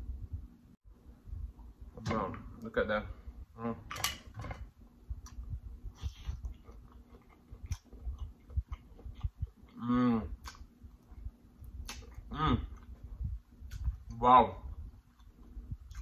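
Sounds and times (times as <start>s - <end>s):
wet chewing and mouth smacks: 5.2s - 9.8s, 10.4s - 16.0s.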